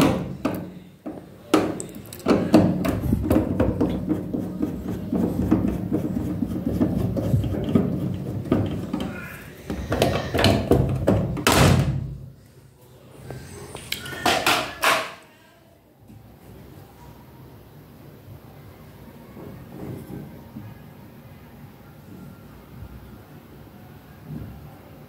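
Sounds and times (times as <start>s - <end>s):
hands working on washing machine: 0.0s - 11.6s.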